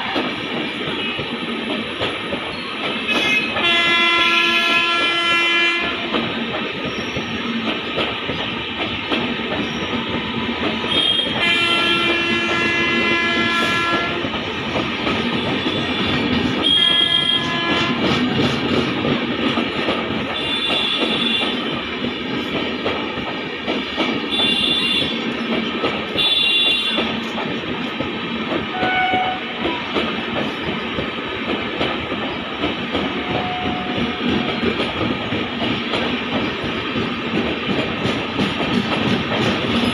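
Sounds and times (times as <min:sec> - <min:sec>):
train rolling past: 0:00.0 - 0:39.9
locomotive horn: 0:03.1 - 0:06.2, 0:10.9 - 0:14.3, 0:15.8 - 0:18.1, 0:20.4 - 0:21.6, 0:24.3 - 0:25.2, 0:26.2 - 0:27.1, 0:28.7 - 0:29.8, 0:33.1 - 0:34.3.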